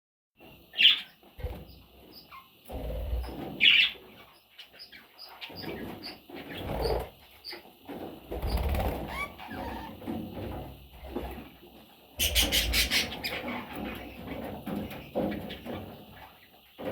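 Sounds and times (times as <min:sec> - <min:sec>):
budgerigars chirping: 0:03.2 - 0:07.6, 0:12.2 - 0:14.1
wing flapping and rustling: 0:07.8 - 0:11.5.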